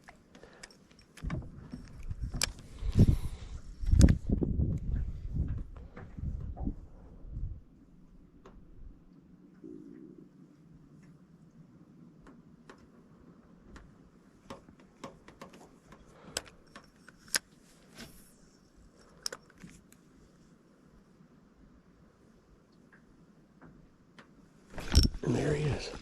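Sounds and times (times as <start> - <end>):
light clicks and taps: 13.6 - 17.5.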